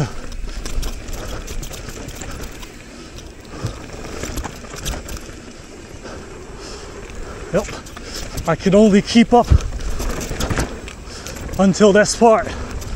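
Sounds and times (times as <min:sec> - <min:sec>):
bike clattering over bumps: 0:00.0 - 0:12.9
tyre and wind rumble: 0:00.0 - 0:12.9.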